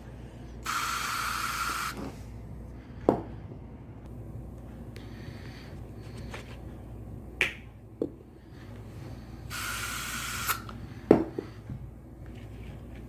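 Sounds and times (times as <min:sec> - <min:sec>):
air freshener spray hiss: 0:00.6 - 0:02.2, 0:09.5 - 0:10.8.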